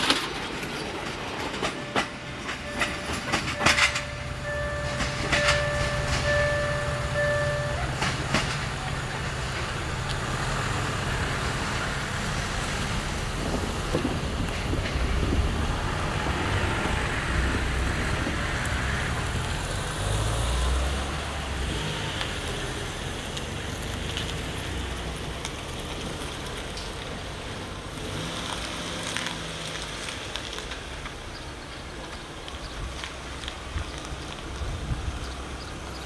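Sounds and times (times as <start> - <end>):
locomotive engine hum: 0.0 - 36.0
train coaches rattling on rails: 0.0 - 36.0.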